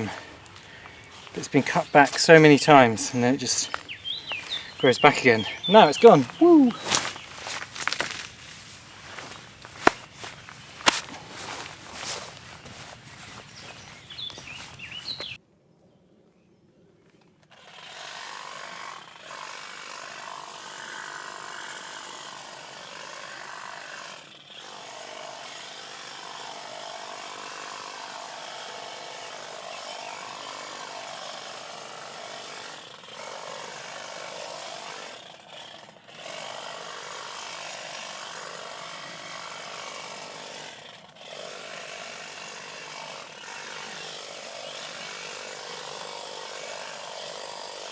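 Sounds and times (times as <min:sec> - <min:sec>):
power tool cutting: 0:17.7 - 0:47.9.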